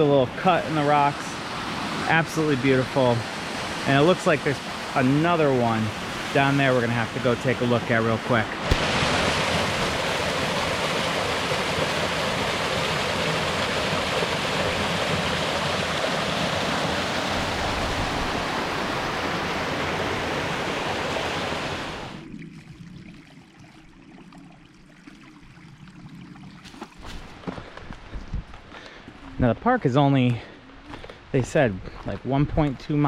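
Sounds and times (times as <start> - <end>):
waterfall rushing: 0.0 - 22.2.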